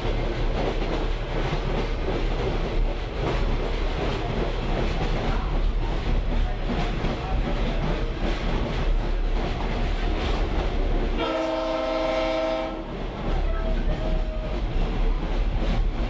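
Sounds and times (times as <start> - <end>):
train rumble and wheel noise: 0.0 - 16.0
locomotive air horn blast: 11.2 - 12.9.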